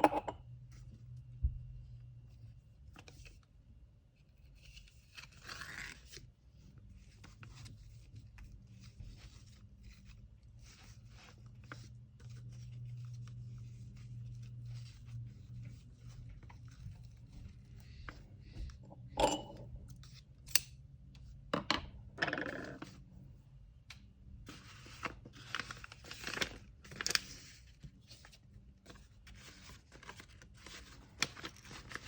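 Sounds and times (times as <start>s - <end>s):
low steady hum: 0.0s - 5.0s, 7.0s - 26.4s
paper crinkling and rustling: 4.4s - 18.4s, 24.4s - 32.0s.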